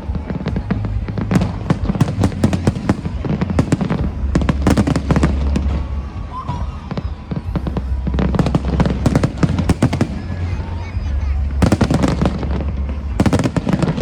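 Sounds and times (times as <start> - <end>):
background music with bass: 0.0 - 14.0
fireworks bangs and crackles: 0.0 - 14.0.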